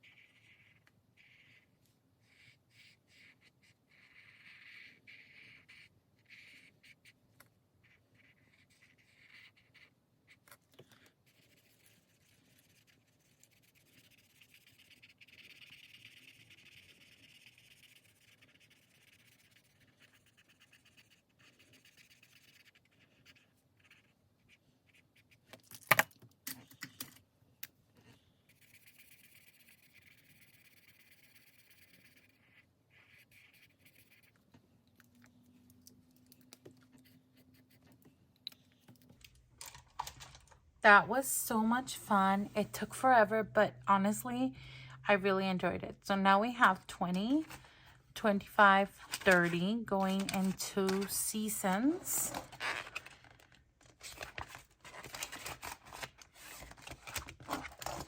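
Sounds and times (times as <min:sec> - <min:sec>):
pen scratching on paper: 0:00.0 - 0:07.2, 0:07.8 - 0:25.4, 0:28.5 - 0:34.4, 0:37.0 - 0:38.0.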